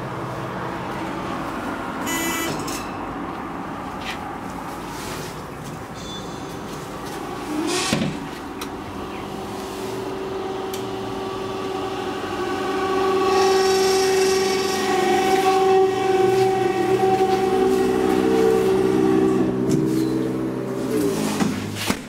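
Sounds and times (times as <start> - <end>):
train whine: 6.0 - 21.8.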